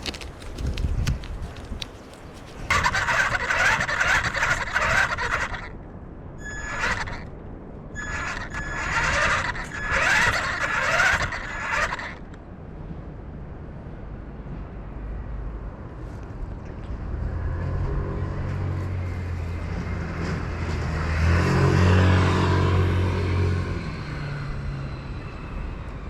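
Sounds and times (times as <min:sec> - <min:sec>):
toy robot whirring: 0:08.0 - 0:11.9.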